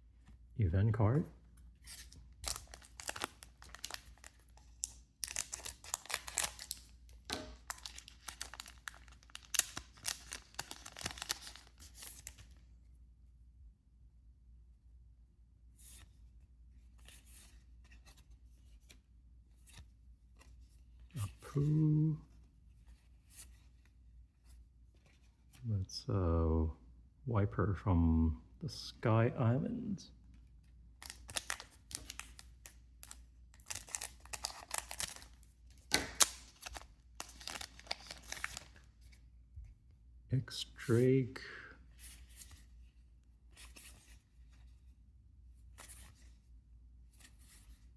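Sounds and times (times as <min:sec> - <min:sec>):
trading cards flicking and rustling: 0:01.8 - 0:12.5, 0:31.0 - 0:38.8
loud card snaps: 0:35.9 - 0:36.5.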